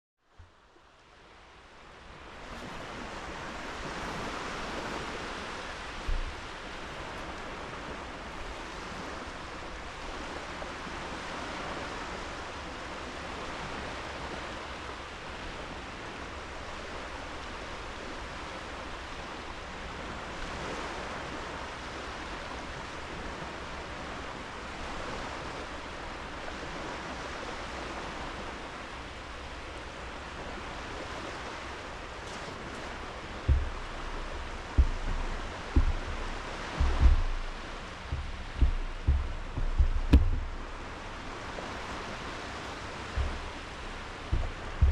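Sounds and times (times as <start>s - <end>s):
waves washing onto sand: 0.6s - 44.9s
brief low thump: 6.0s - 6.5s, 33.5s - 40.8s, 43.1s - 44.9s.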